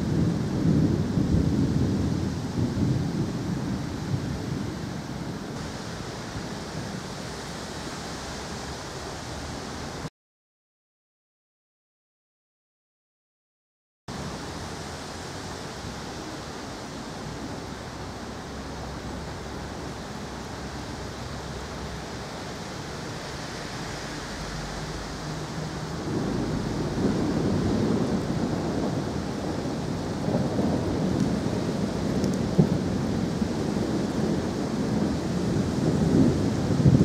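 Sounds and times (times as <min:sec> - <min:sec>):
rolling thunder: 0:00.0 - 0:07.2, 0:22.8 - 0:37.0
rain hiss: 0:00.0 - 0:10.1, 0:14.1 - 0:37.0.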